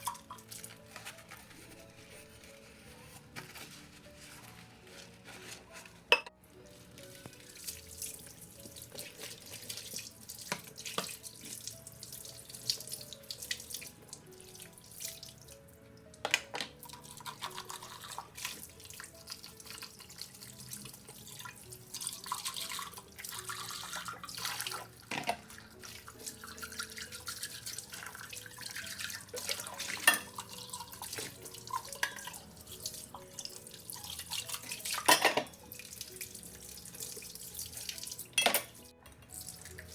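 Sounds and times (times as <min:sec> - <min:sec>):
tap water running into sink: 0:07.2 - 0:15.5, 0:16.3 - 0:39.9.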